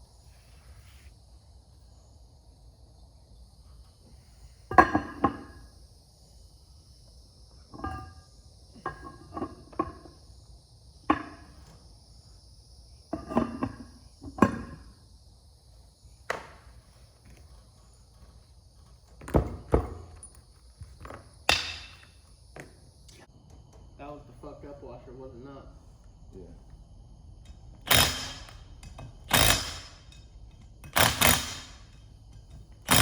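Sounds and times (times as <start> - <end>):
metal tools knocking and clinking: 7.7 - 8.2, 27.4 - 33.0.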